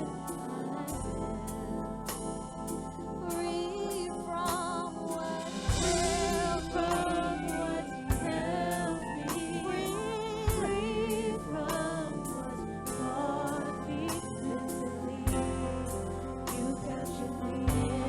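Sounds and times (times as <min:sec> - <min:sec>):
vocalists singing: 0:00.0 - 0:02.0, 0:03.2 - 0:18.0
held bass: 0:00.0 - 0:18.0
worship band playing: 0:00.0 - 0:18.0
drum hits: 0:05.6 - 0:07.5.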